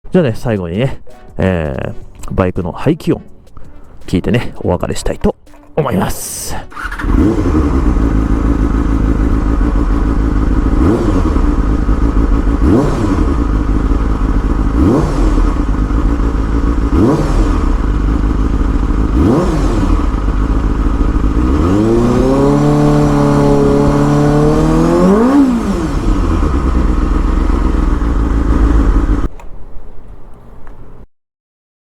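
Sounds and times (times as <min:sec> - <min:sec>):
motorcycle engine idling and revving: 0:06.7 - 0:29.4.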